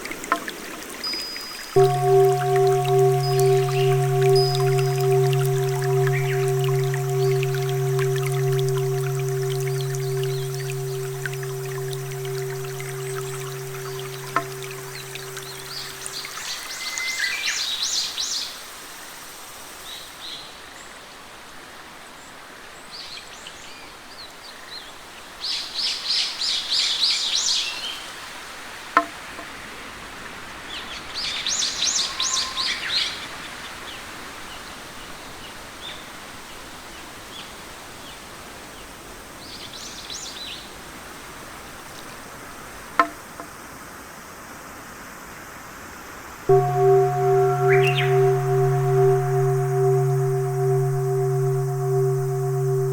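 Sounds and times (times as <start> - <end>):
nature ambience hiss: 0.0 - 18.3, 46.5 - 52.9.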